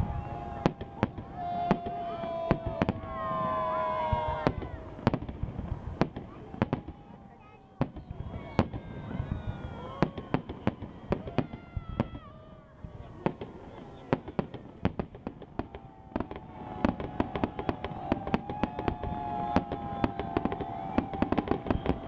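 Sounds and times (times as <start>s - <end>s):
long steady whistle: 0.0s - 4.9s, 6.6s - 12.7s, 15.6s - 22.0s
falling firework whistles: 0.0s - 7.0s, 7.8s - 12.4s, 13.3s - 22.0s
fireworks bangs and crackles: 0.0s - 22.0s.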